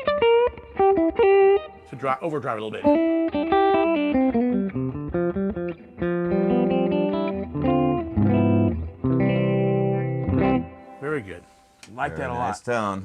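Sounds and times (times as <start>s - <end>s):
overdriven electric guitar: 0.0s - 1.9s, 2.8s - 11.0s.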